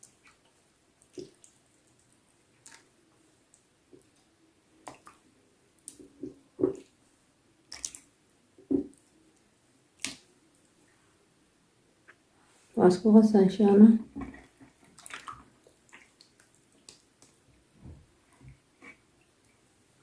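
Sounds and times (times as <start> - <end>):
squelching of chicken in marinade: 14.3 - 17.4.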